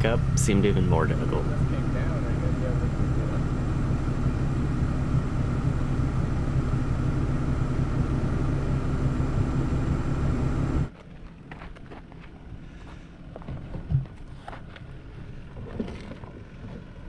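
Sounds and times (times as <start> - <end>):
vehicle engine idling: 0.0 - 11.5.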